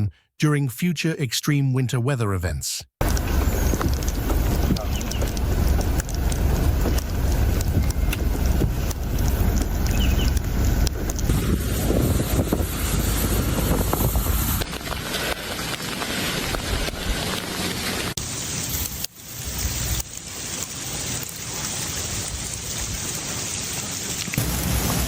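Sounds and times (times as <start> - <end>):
freezing rain falling: 3.0 - 25.0
wind rushing: 3.2 - 14.6.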